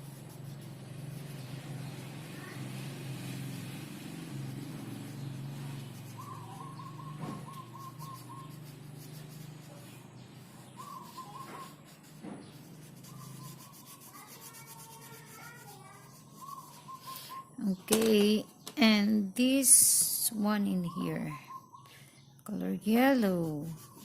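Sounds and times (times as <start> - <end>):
colouring strokes on paper: 0.0 - 17.4, 22.8 - 24.0
bird trilling: 5.9 - 9.2, 10.4 - 12.0, 12.9 - 14.7, 15.4 - 17.8, 20.6 - 22.0.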